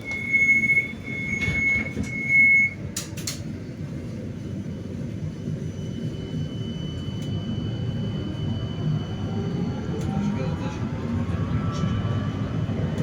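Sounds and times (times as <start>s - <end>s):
high steady beep: 0.0s - 2.8s
tram rumbling on rails: 0.0s - 13.0s.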